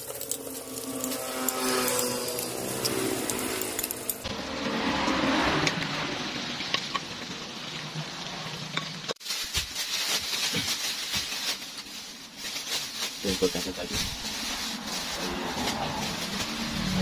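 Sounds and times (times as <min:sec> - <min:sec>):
plastic bag crinkling: 0:00.0 - 0:04.2, 0:09.2 - 0:17.0
metal spatula in wok: 0:00.0 - 0:07.7
food sizzling in hot oil: 0:00.0 - 0:11.8.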